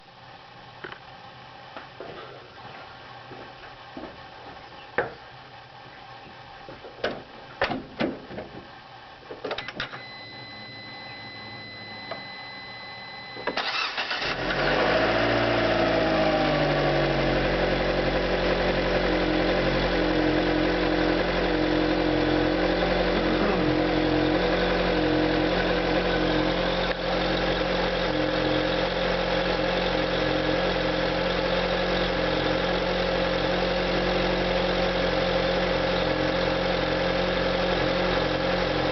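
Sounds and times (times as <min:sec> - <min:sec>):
steady high tone: 0:09.9 - 0:14.4, 0:15.8 - 0:33.3
car engine idling: 0:10.0 - 0:38.9
car engine cranking and starting: 0:13.2 - 0:38.9.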